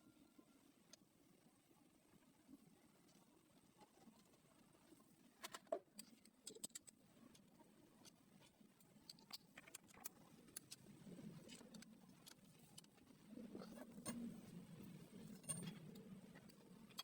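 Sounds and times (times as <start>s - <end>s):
light clicks and taps: 5.4s - 14.3s.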